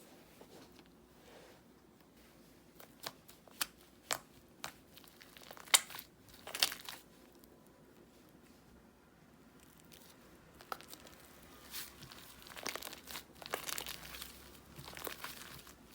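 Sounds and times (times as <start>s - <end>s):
slime crackling pops: 3.0s - 6.9s.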